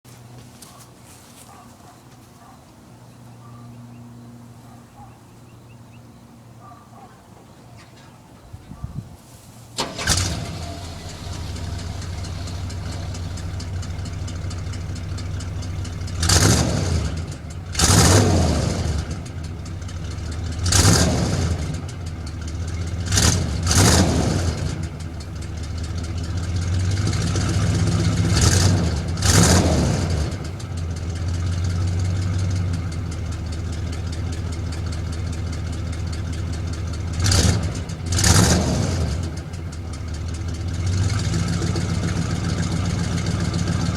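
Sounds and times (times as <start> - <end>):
engine revving and idling: 9.8 - 43.9.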